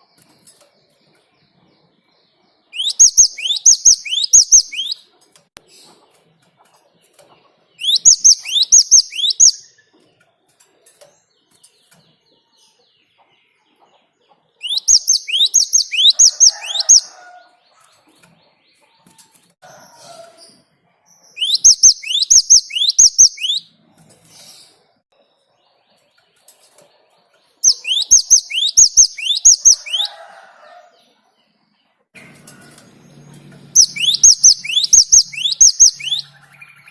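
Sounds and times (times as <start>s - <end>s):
faint bird chirps: 0.0s - 10.3s, 11.0s - 31.2s, 32.5s - 36.9s
bird whistling falling notes: 7.8s - 9.6s, 14.6s - 17.0s, 33.8s - 36.3s.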